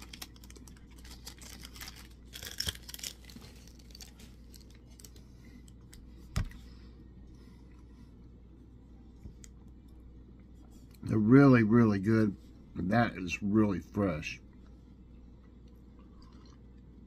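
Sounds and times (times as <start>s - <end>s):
wrapper crackling: 0.0s - 5.2s
man chewing food: 14.5s - 17.0s.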